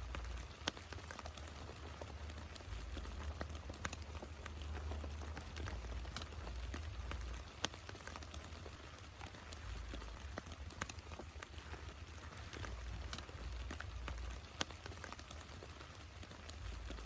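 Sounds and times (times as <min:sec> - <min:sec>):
rain falling: 0:00.0 - 0:17.0
raindrops ticking close by: 0:00.0 - 0:17.0.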